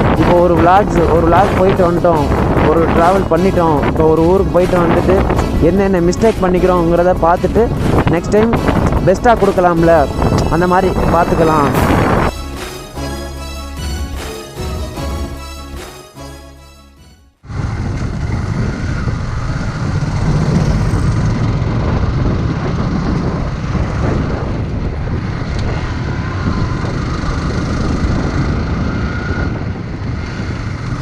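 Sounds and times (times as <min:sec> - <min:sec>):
wind on microphone: 0:00.0 - 0:12.3, 0:17.4 - 0:31.0
road noise: 0:00.0 - 0:16.5, 0:17.4 - 0:31.0
music: 0:00.0 - 0:17.4
motorcycle engine: 0:17.4 - 0:31.0.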